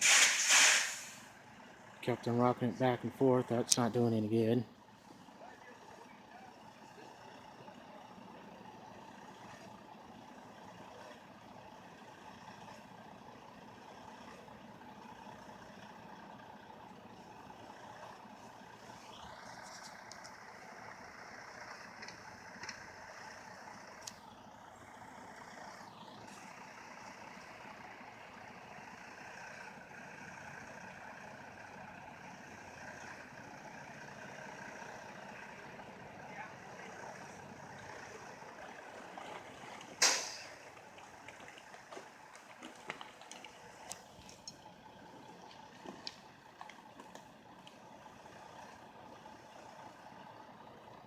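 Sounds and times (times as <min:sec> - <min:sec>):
tires spinning in snow: 0:00.0 - 0:04.3, 0:04.9 - 0:51.0
truck engine running: 0:00.0 - 0:51.0.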